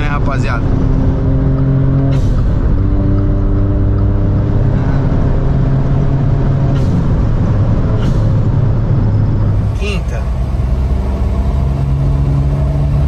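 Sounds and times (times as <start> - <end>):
car engine pulling under load: 0.6 - 13.0.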